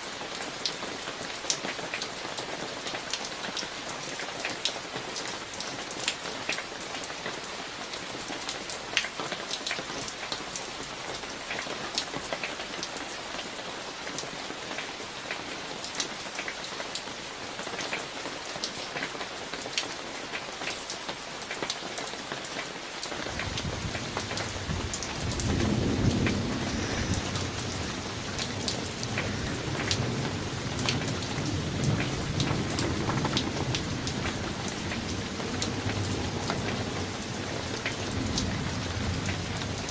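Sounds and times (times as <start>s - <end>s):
steady rain: 0.0s - 39.9s
raindrop hits: 23.1s - 36.9s
thunder rumbling: 23.1s - 39.9s.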